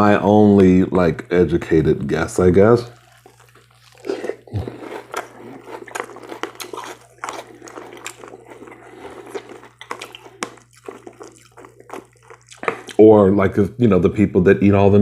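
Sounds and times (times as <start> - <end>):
crunching cereal: 2.1 - 13.1.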